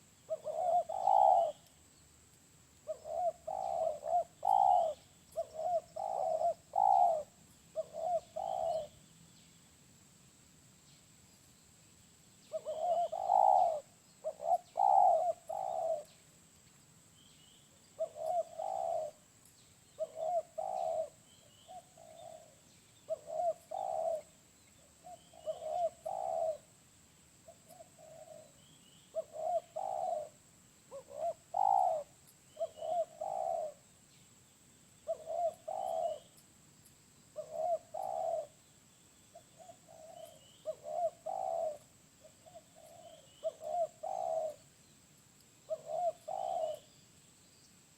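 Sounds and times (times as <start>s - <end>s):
dove cooing: 0.0s - 1.7s, 2.8s - 9.0s, 12.5s - 16.2s, 17.9s - 19.2s, 20.0s - 26.7s, 27.4s - 33.8s, 35.0s - 36.4s, 37.4s - 38.6s, 39.3s - 44.7s, 45.7s - 47.0s.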